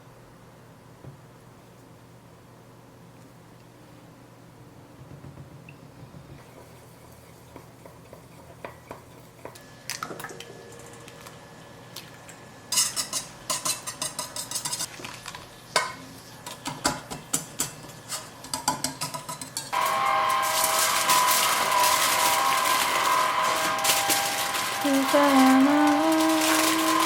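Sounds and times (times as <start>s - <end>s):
utensil stirring against a dish: 6.4s - 9.6s.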